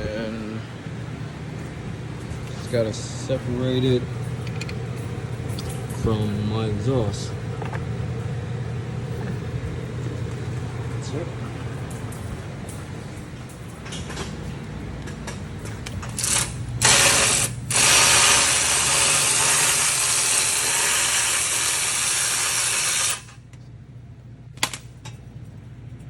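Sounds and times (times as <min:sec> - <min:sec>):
pneumatic wrench running: 0:16.0 - 0:23.4.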